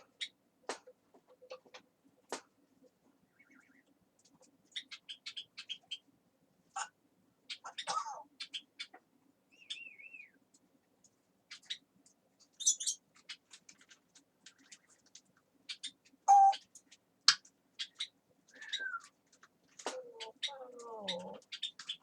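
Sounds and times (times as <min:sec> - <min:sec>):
parrot clicks and chirps: 0:15.7 - 0:19.1
parrot whistling: 0:16.3 - 0:16.6.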